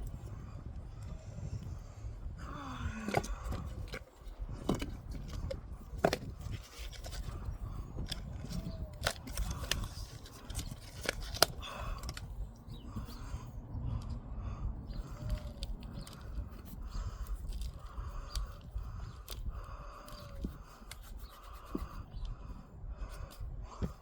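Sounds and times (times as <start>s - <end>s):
steady low rumble: 0.0s - 24.0s
sharp clicks and scrapes: 3.1s - 12.3s, 15.0s - 22.4s.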